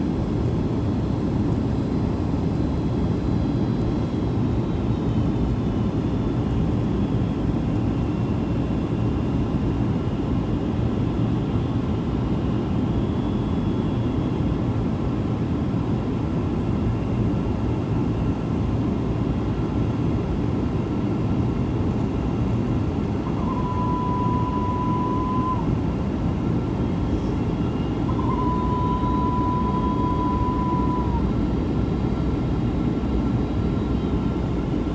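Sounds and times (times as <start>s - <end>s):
airliner engine rumble in cabin: 0.0s - 34.9s
high beeps: 23.3s - 25.6s, 27.7s - 31.2s.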